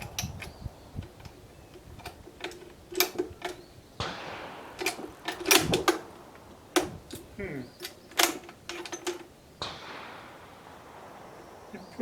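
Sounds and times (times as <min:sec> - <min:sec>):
rifle bolt clicks and clacks: 0:00.2 - 0:03.6, 0:04.8 - 0:06.1, 0:06.8 - 0:09.3.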